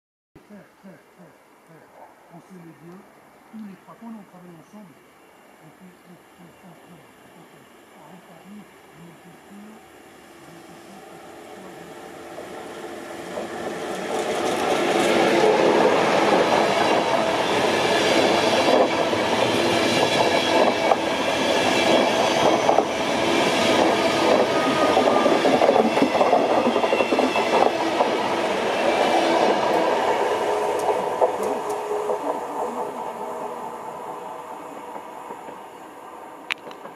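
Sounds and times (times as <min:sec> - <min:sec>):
train wheels rushing on rails: 0:10.9 - 0:36.9
wheels clickety-clack: 0:13.2 - 0:28.6.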